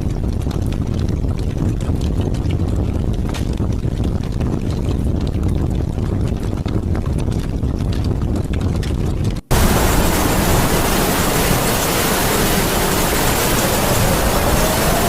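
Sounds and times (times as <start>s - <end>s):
low rumbling wind: 0.0s - 15.0s
heavy rain hiss: 9.5s - 15.0s.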